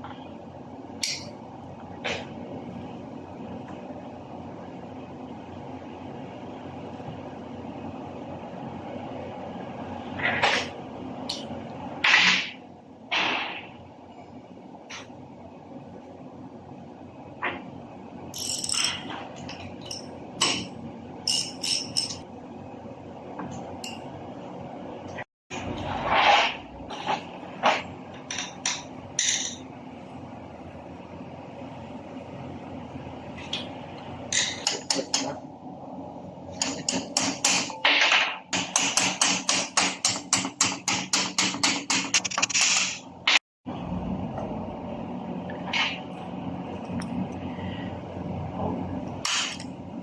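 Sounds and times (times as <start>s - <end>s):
hammer striking: 36.6s - 43.0s.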